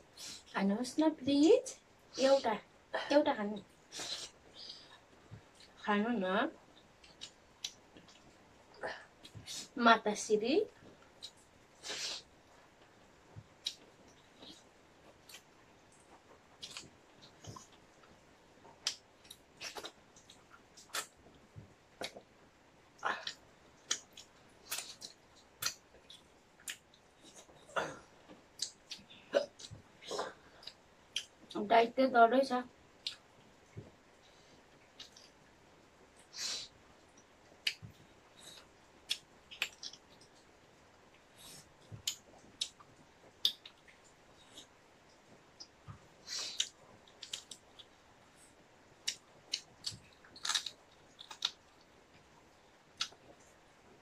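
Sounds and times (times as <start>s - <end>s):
wet chewing and lip-smacking: 28.6s - 29.8s, 34.8s - 35.4s, 37.0s - 40.5s, 41.1s - 48.0s, 49.0s - 52.3s, 52.9s - 53.4s.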